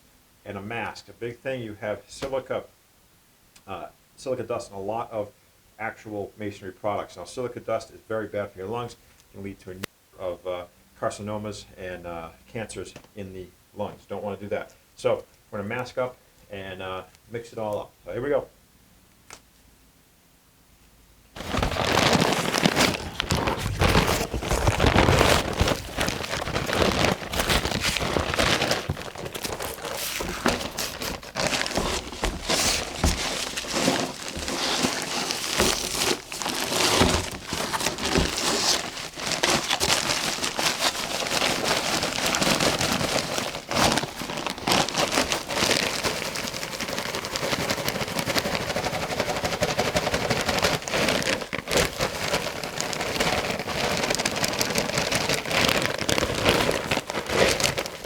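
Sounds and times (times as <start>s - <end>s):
hoe scraping mortar mix: 21.4s - 46.9s
knocks and crackles: 21.4s - 52.4s.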